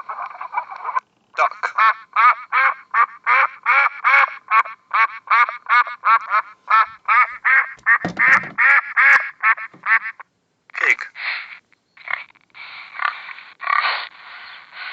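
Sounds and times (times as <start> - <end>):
duck quacking: 1.4 - 10.2
low thump: 7.8 - 8.6.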